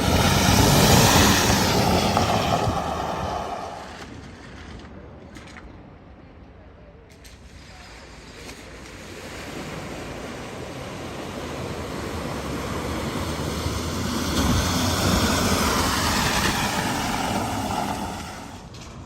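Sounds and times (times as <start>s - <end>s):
water rushing: 0.0s - 4.0s, 8.0s - 18.7s
vehicle engine rumble: 0.0s - 19.0s.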